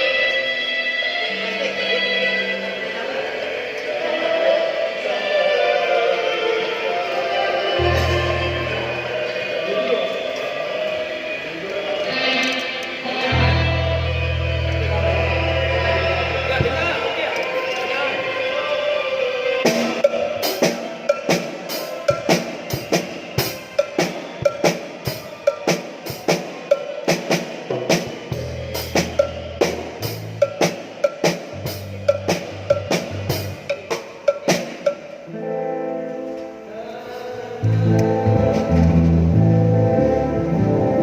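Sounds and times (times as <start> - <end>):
bass notes: 7.8 - 9.4, 13.3 - 17.0, 31.5 - 33.6, 37.6 - 41.0
drum kit snare beat: 19.7 - 35.2.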